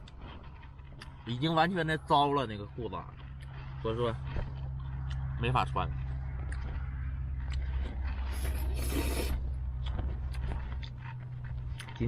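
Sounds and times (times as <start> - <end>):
steady low hum: 0.0 - 12.0
objects scraping and clicking: 7.6 - 9.4
hissing scrape: 8.2 - 9.4.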